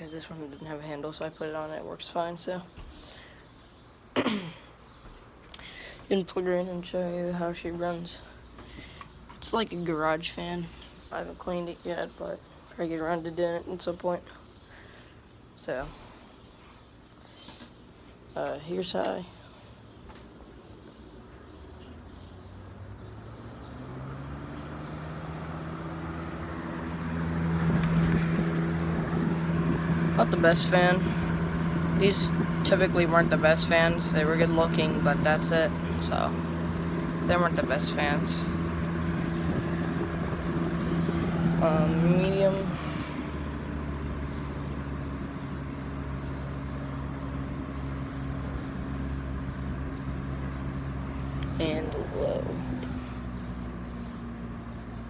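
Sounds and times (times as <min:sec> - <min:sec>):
fan motor hum: 0:04.8 - 0:55.0
low rising tone: 0:22.0 - 0:54.9
rush of air from fan: 0:38.0 - 0:44.5.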